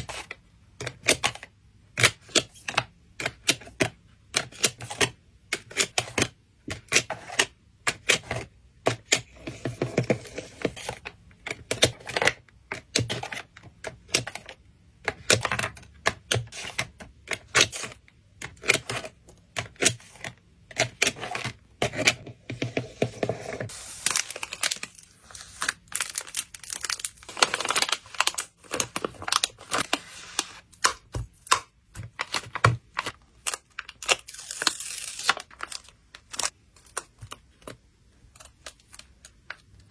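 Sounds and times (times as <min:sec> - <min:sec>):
plastic crinkling: 0:23.7 - 0:30.6.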